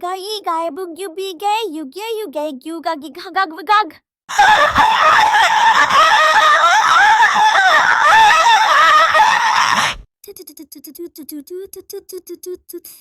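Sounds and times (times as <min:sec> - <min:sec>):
distorted synthetic voices shrieking: 0:04.3 - 0:10.0.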